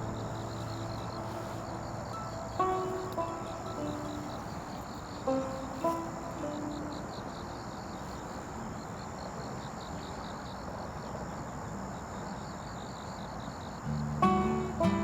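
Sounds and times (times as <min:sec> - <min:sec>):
low rushing background: 0:00.0 - 0:06.1
thin high whine: 0:00.0 - 0:06.1
insect chirping: 0:00.0 - 0:15.0.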